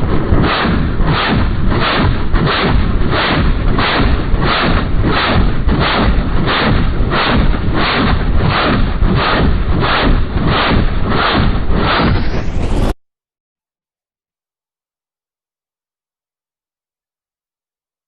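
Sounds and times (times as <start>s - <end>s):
heavy rumble: 0.0s - 13.0s
helicopter firing rockets: 0.0s - 13.0s.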